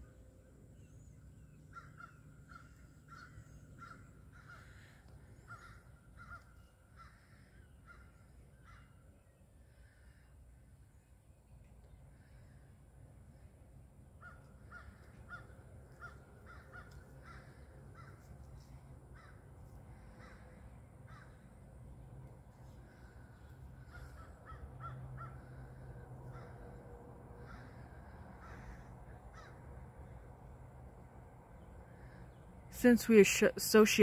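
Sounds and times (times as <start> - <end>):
low steady rumble: 0.0 - 34.0
birds calling: 0.8 - 10.3, 14.2 - 26.8, 27.4 - 30.2.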